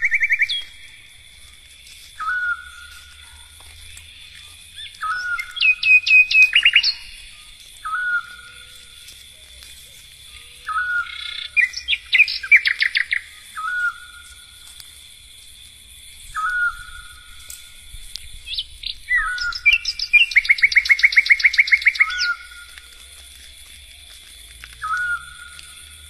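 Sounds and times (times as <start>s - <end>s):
songbird whistling and trilling: 0.0s - 0.9s, 2.2s - 3.4s, 4.1s - 9.0s, 10.3s - 14.6s, 16.3s - 17.7s, 18.4s - 22.9s, 24.7s - 25.9s.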